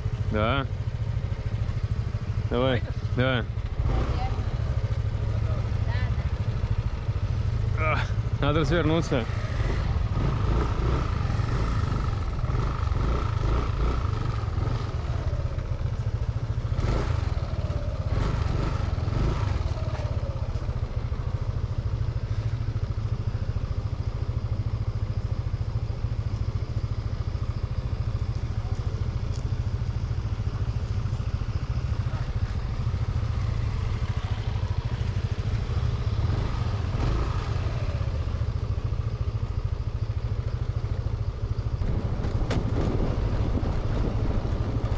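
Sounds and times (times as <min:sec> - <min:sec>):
motorbike running: 0:00.0 - 0:44.9
wind rumble on microphone: 0:41.7 - 0:44.9.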